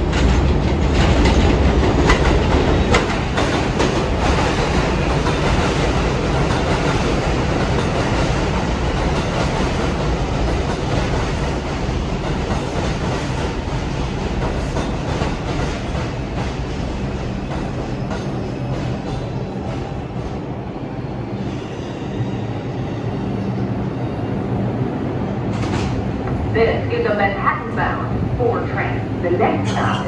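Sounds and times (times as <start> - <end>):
subway train rumbling on rails: 0.0 - 30.0.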